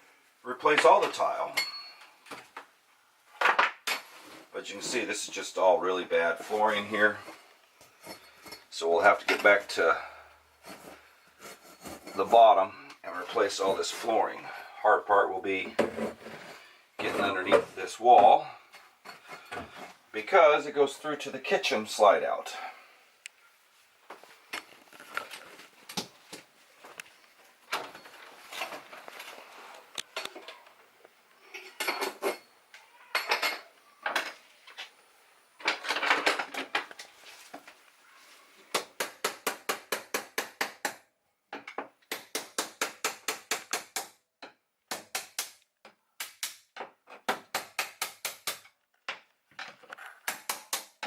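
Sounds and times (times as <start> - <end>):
hand tools scraping tile: 10.6 - 12.4, 15.7 - 17.5.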